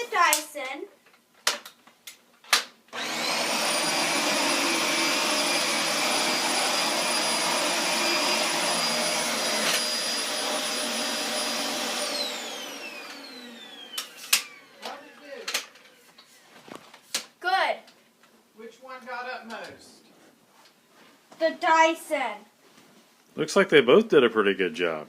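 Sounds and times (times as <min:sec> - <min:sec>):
vacuum cleaner motor whining: 0:03.0 - 0:16.4
vacuum cleaner switch click: 0:13.9 - 0:15.6.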